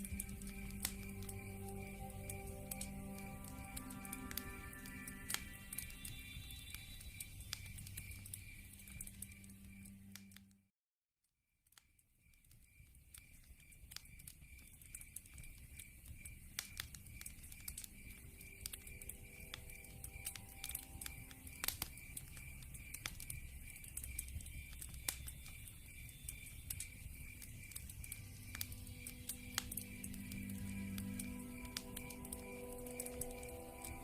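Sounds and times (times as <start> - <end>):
low rumble: 0.0 - 6.8
log fire crackling and popping: 0.0 - 10.4, 12.2 - 34.0.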